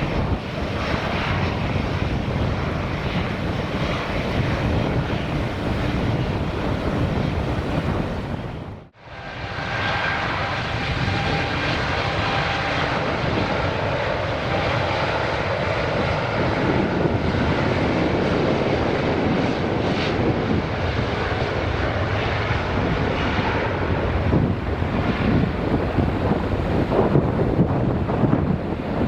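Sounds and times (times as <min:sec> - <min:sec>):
jet engines roaring: 0:00.0 - 0:29.0.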